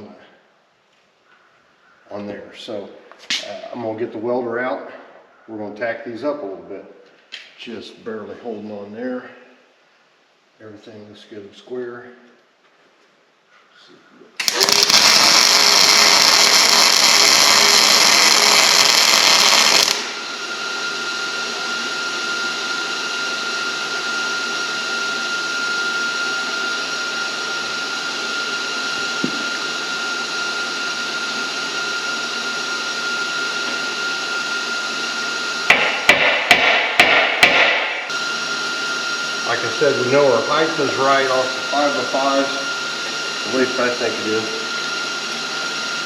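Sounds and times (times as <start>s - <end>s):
welding arc sizzling: 14.4s - 20.4s, 35.2s - 45.6s
hammer strikes on steel: 35.7s - 38.1s.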